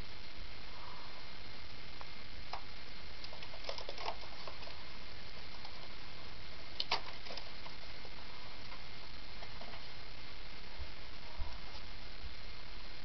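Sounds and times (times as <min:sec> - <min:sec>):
steady hiss: 0:00.0 - 0:13.0
cockatiels tapping and clicking: 0:03.2 - 0:04.8, 0:06.8 - 0:07.8.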